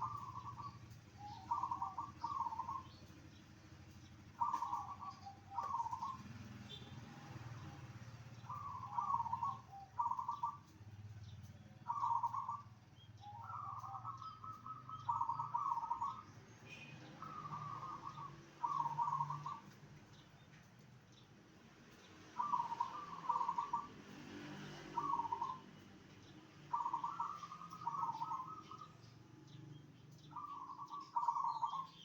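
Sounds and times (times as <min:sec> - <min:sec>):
dove cooing: 0:00.0 - 0:03.1, 0:04.1 - 0:06.4, 0:08.4 - 0:10.8, 0:11.8 - 0:16.2, 0:17.2 - 0:19.8, 0:22.4 - 0:24.0, 0:24.9 - 0:25.8, 0:26.6 - 0:29.1, 0:30.1 - 0:32.0.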